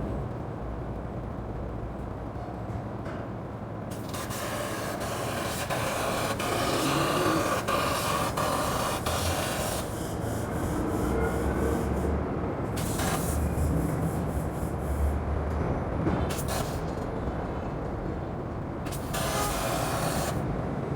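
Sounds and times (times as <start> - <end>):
laser cutter hissing: 3.9 - 12.0, 12.8 - 13.7, 16.3 - 16.8, 18.9 - 20.5.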